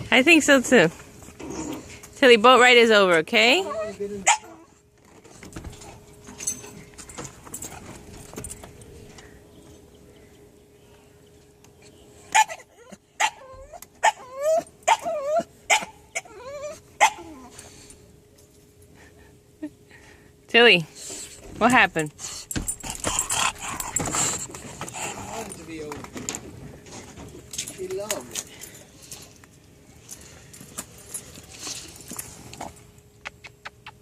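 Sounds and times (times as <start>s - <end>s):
dog whining and yipping: 3.6s - 4.8s, 12.3s - 17.6s.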